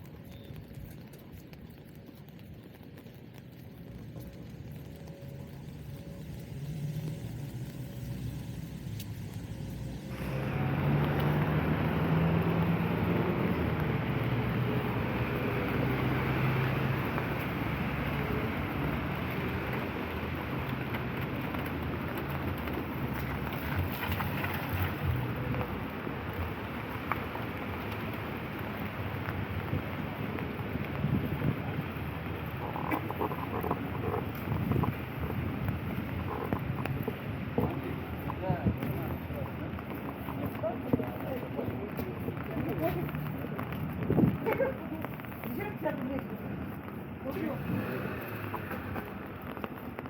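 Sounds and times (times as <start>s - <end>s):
rain: 0.0s - 50.0s
traffic engine hum: 0.0s - 50.0s
tyres hissing on wet asphalt: 1.8s - 50.0s.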